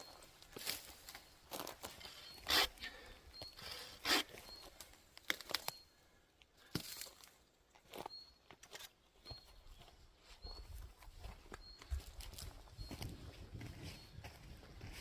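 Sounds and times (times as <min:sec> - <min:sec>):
footsteps crunching on track: 0:09.3 - 0:15.0.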